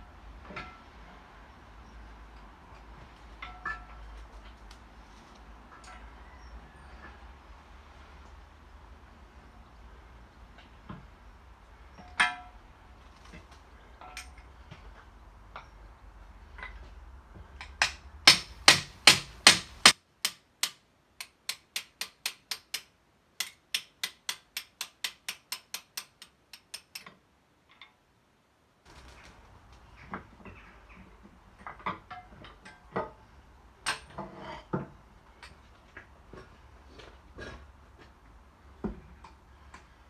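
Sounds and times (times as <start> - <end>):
hammer striking metal: 18.3 - 27.0.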